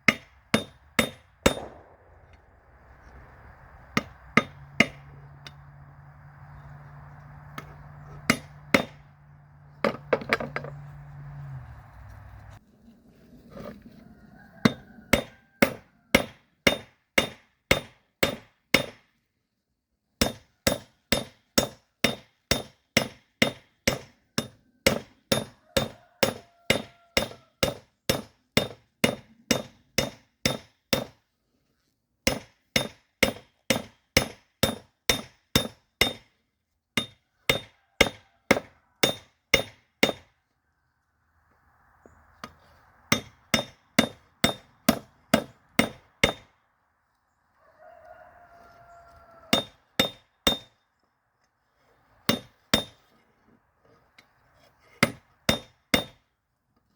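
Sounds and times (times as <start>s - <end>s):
hammer blows on steel anvil: 0.1s - 2.2s.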